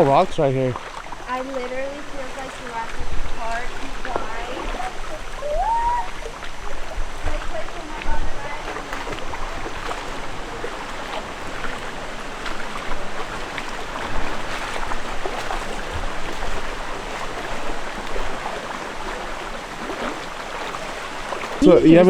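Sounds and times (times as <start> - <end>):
small splashes: 0.0 - 22.0
stream and waterfall rushing: 0.0 - 22.0.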